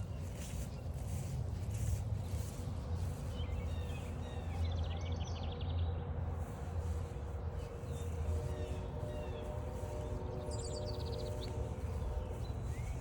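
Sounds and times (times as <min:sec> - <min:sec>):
footsteps: 0:00.0 - 0:04.2, 0:06.4 - 0:13.0
woodland birds singing: 0:00.0 - 0:05.9, 0:06.8 - 0:13.0
low rumble from walking: 0:00.0 - 0:13.0.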